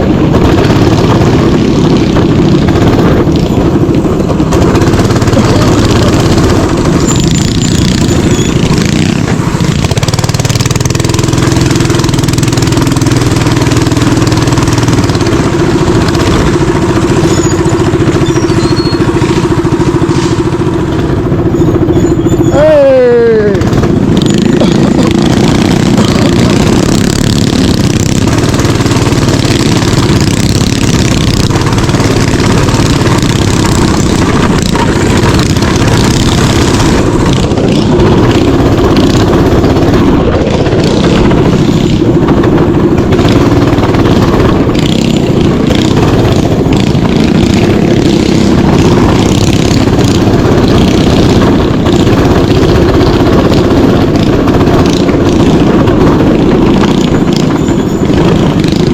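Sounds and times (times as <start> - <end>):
mini bike engine running: 0.0 - 58.9.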